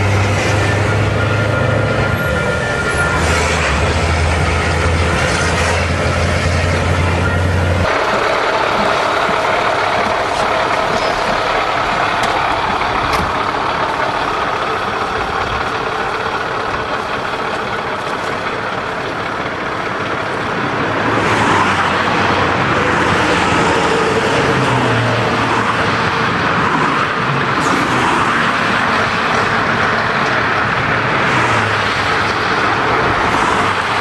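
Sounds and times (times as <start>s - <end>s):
diesel truck engine running: 0.0s - 34.0s.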